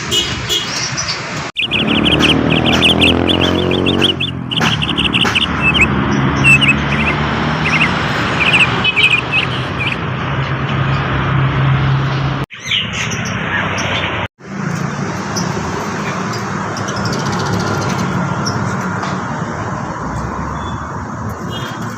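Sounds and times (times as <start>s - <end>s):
bird chirping: 0.6s - 10.0s, 12.5s - 14.2s
engine humming: 1.3s - 12.4s.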